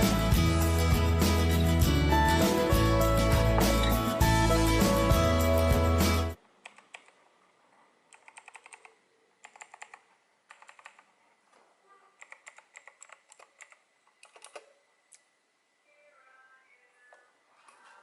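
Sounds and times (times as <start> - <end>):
clicky mechanical keyboard typing: 8.1 - 11.1, 12.2 - 14.7.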